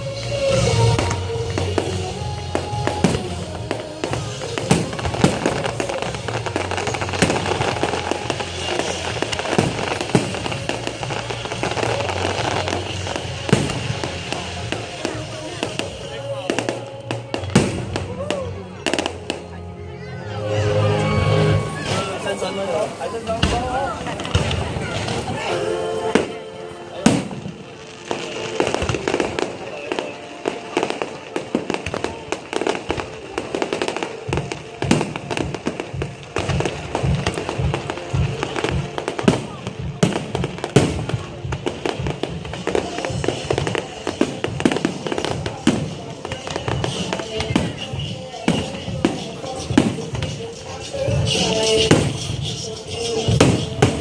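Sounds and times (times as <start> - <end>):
fireworks crackling and popping: 0.0 - 54.0
loud firework bangs: 0.2 - 19.4, 27.0 - 54.0.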